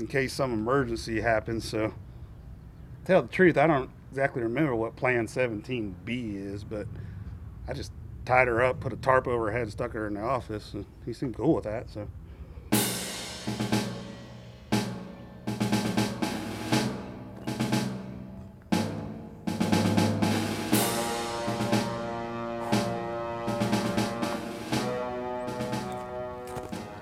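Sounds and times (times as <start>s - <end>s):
crashing drum hits: 12.7s - 27.0s
drum-heavy instrumental music: 12.7s - 27.0s
held pitched notes: 12.7s - 27.0s.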